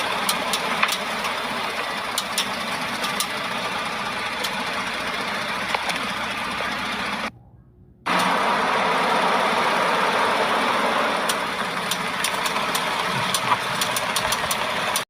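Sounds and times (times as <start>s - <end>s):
truck engine running: 0.0s - 15.0s
light clicking from wheel: 0.3s - 1.1s, 2.1s - 3.4s, 11.2s - 15.0s.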